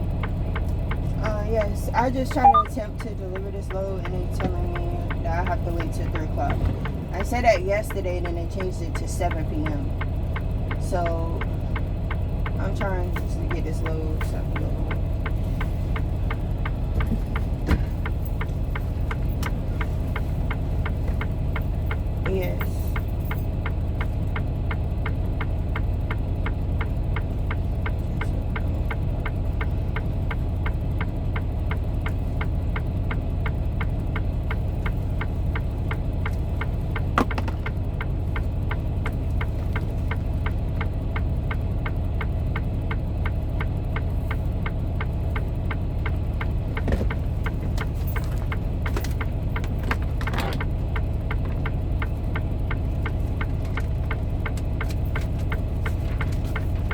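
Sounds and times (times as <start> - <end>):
truck diesel engine idling: 0.0 - 56.9.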